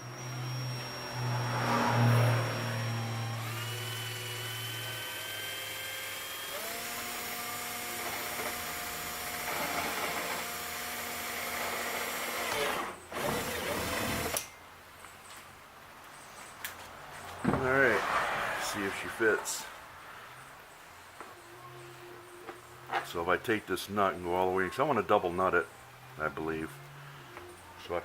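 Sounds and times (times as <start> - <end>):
electric drill boring plastic: 0.0 - 14.5.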